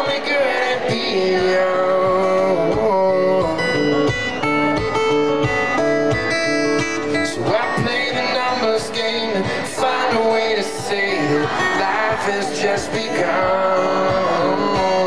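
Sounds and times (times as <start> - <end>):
live band playing: 0.0 - 15.0
plucked guitar notes: 0.0 - 15.0.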